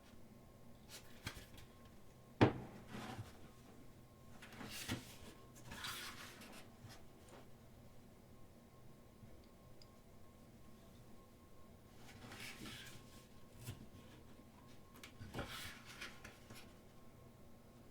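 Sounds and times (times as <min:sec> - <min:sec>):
pages rustling and turning: 0:04.4 - 0:07.0, 0:12.0 - 0:13.9, 0:15.0 - 0:16.8.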